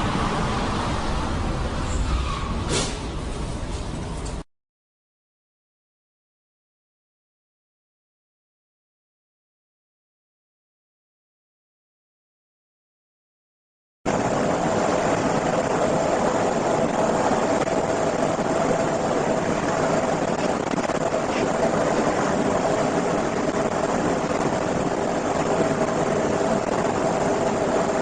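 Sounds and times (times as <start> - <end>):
engine humming steadily: 0.0 - 4.4, 14.1 - 28.0.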